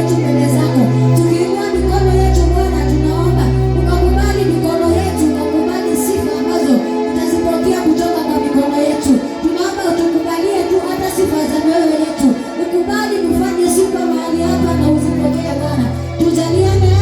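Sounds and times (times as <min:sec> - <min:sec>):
low held bass note: 0:00.0 - 0:05.4, 0:14.5 - 0:17.0.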